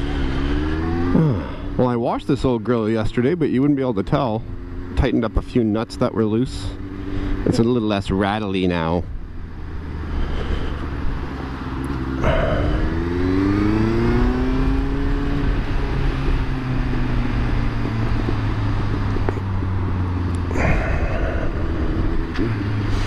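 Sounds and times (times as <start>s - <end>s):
motorcycle engine accelerating: 0.0s - 23.0s
wind rushing over microphone: 12.2s - 23.0s.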